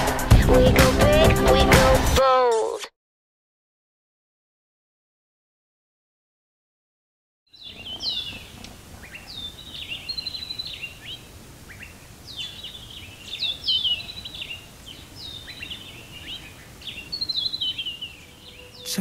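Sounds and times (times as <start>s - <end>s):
songbird chirping and trilling: 7.5s - 19.0s
faint background hiss: 7.6s - 19.0s.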